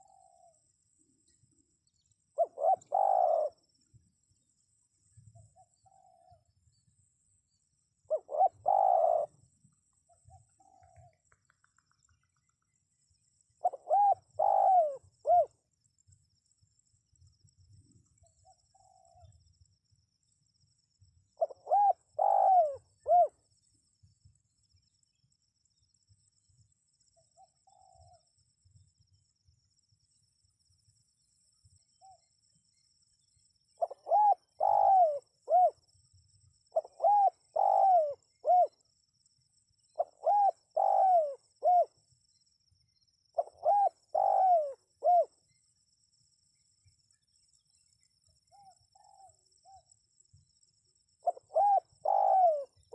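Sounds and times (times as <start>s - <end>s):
dove cooing: 0.0s - 0.6s, 2.4s - 3.6s, 8.1s - 9.5s, 13.6s - 15.5s, 21.4s - 23.4s, 27.4s - 28.2s, 33.8s - 35.8s, 36.7s - 38.8s, 40.0s - 41.9s, 43.4s - 45.4s, 51.2s - 52.9s.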